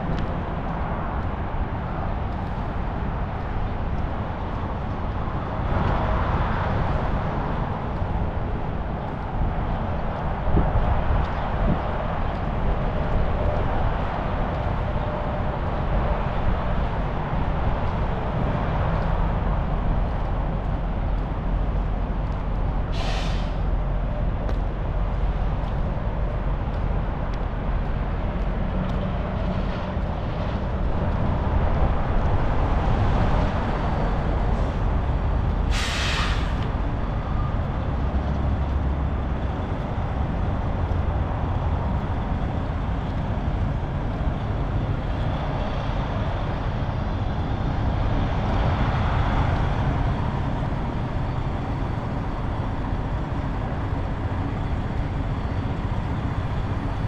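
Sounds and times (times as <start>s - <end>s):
diesel truck engine rumbling: 0.0s - 57.0s
air brake release hiss: 22.9s - 23.6s, 35.7s - 36.6s.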